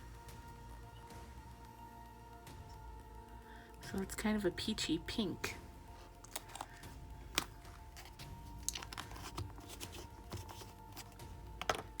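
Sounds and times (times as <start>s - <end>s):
soft background music: 0.0s - 12.0s
plastic packaging clicks and crinkles: 6.1s - 12.0s.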